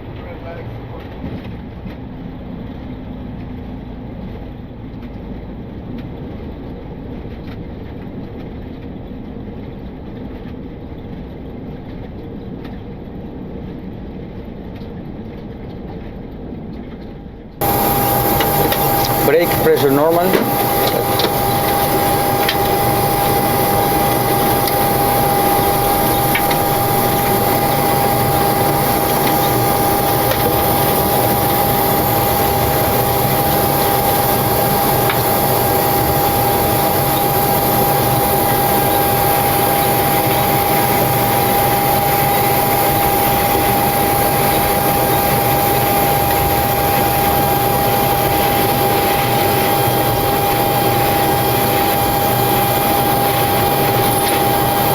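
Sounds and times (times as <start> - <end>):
jet engines rushing and whining: 17.6 - 54.9.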